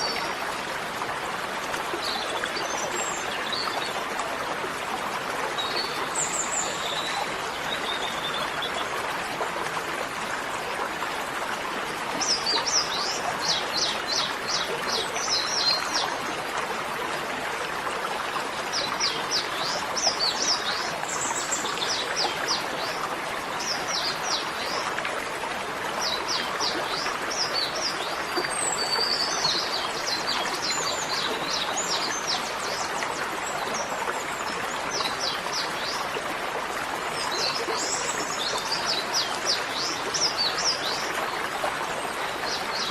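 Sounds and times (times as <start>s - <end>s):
running water: 0.0s - 42.9s.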